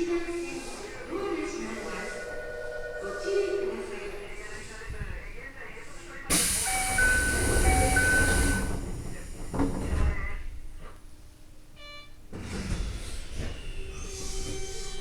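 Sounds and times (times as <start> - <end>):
train door air hiss: 6.3 - 10.2, 12.4 - 15.0
train rumbling as it starts: 6.3 - 11.2, 12.3 - 15.0.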